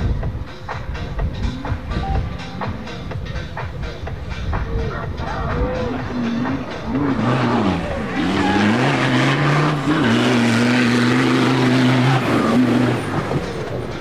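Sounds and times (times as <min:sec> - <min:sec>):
race car engine revving: 0:05.1 - 0:14.0.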